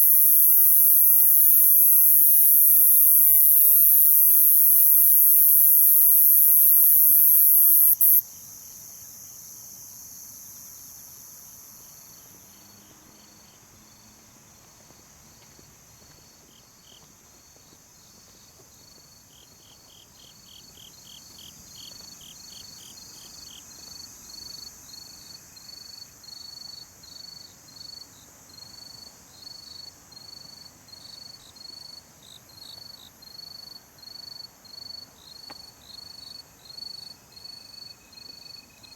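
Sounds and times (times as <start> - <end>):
high-pitched insect shrill: 0.0 - 8.2
crickets chirping: 0.0 - 14.0, 16.2 - 38.9
regular insect chirp: 0.0 - 14.0, 17.9 - 38.9.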